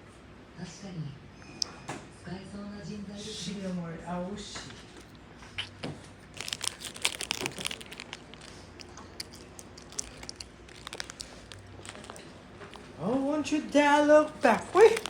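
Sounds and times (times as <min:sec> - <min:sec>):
packaging crinkling: 0:06.3 - 0:15.0.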